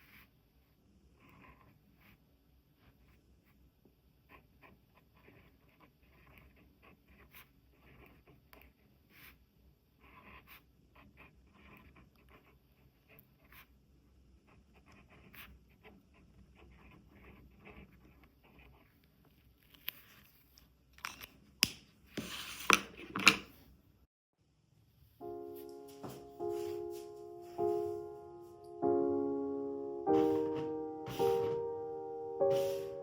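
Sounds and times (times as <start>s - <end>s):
faint scratches and soft clicks: 15.9s - 21.4s.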